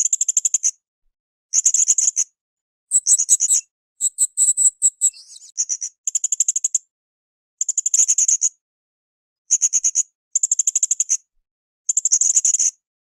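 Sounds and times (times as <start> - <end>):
parrot calling shrilly: 2.9 - 5.5.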